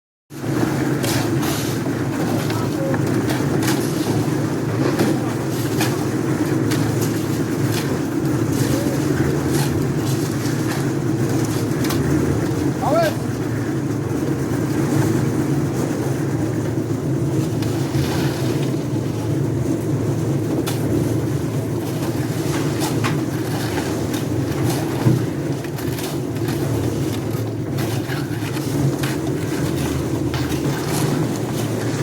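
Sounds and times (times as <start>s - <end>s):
engine droning: 0.3s - 32.0s.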